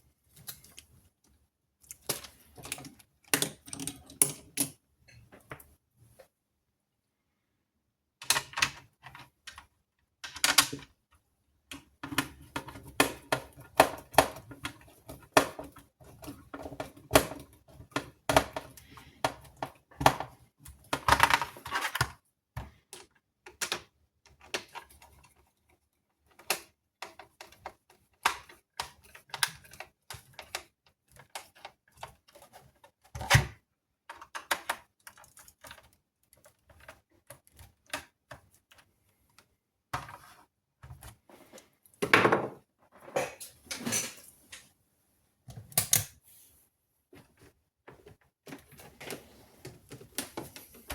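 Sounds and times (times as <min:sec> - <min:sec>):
tools clicking and tapping on workbench: 0:01.9 - 0:05.7.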